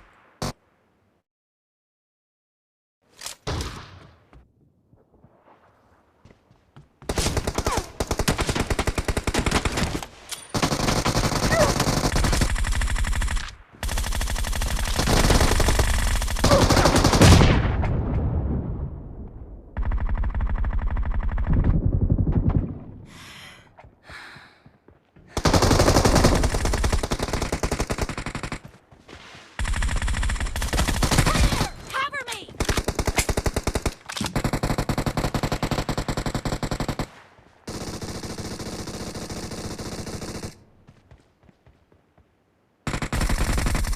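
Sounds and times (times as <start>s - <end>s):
video game automatic gunfire: 7.1s - 17.6s, 19.8s - 22.4s, 25.4s - 28.8s, 29.6s - 40.6s, 42.9s - 43.9s.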